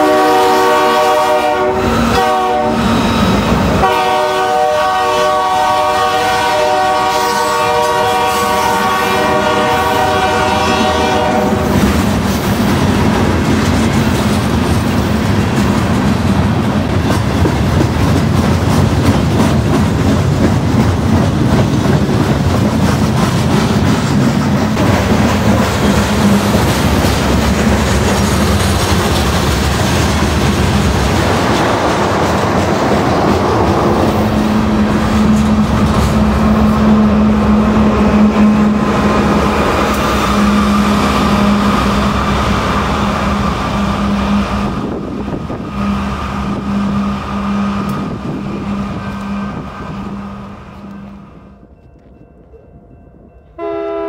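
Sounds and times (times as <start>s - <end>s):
train wheels clacking: 10.4s - 49.7s.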